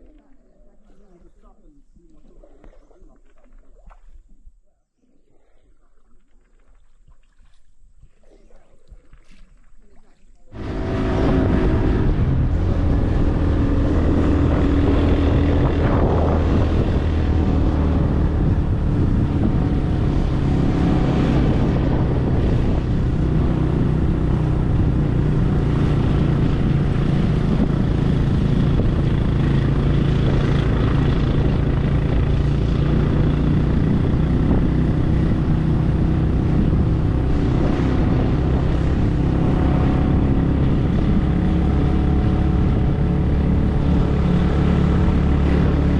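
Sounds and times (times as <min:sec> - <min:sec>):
vehicle engine running: 0:10.5 - 0:45.9.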